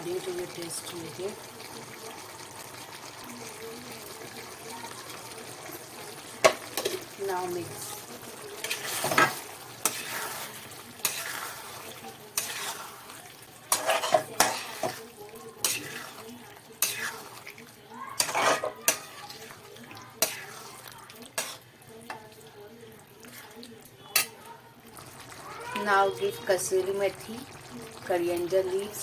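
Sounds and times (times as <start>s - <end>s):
pan sizzling: 0.0s - 29.0s
spoon scraping a pan: 6.3s - 22.4s, 23.2s - 24.5s.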